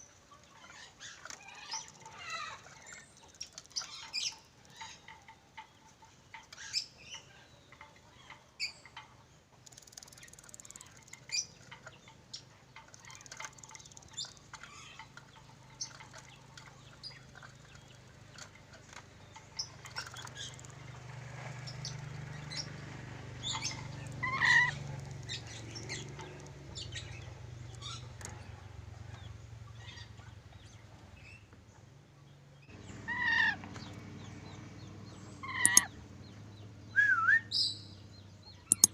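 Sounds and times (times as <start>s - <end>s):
parrot squawking and chattering: 23.6s - 26.5s, 32.8s - 33.6s, 35.4s - 36.0s.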